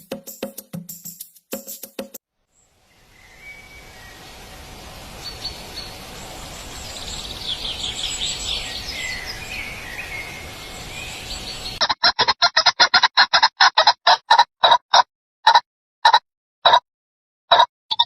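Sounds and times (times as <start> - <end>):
small birds chirping and twittering: 2.5 - 11.8
background hiss: 2.6 - 11.8.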